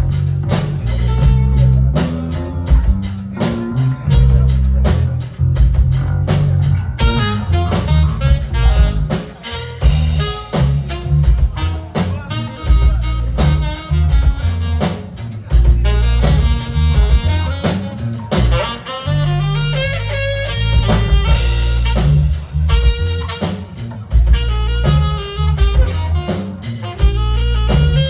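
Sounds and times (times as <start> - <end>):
band playing jazz-funk: 0.0 - 28.0
bass line: 0.0 - 28.0
drum kit beat: 0.0 - 28.0.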